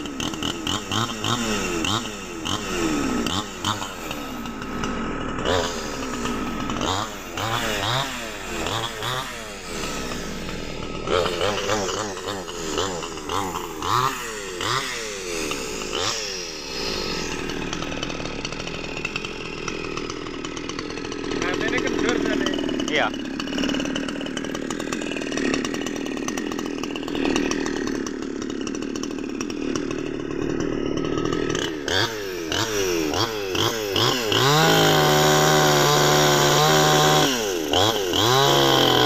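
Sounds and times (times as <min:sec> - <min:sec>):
chainsaw cutting log: 0:00.0 - 0:39.0.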